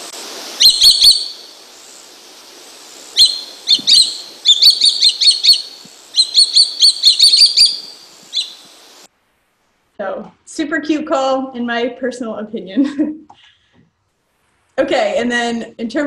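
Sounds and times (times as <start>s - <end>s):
kite calling in high whistles: 0.0s - 1.6s, 3.1s - 8.8s
faint steady hiss: 0.0s - 16.0s.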